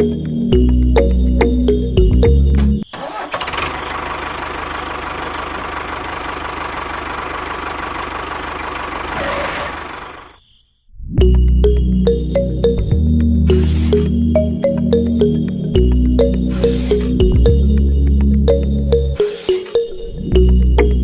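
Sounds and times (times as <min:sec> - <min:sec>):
engine running with low knocking: 0:03.4 - 0:10.3.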